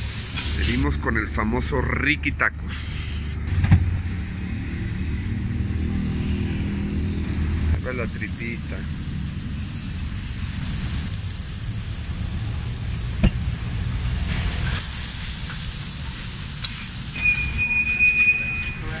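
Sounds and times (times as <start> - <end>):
meat sizzling on a griddle: 0.0 - 0.8, 7.3 - 17.9
steady high tone: 17.2 - 19.0.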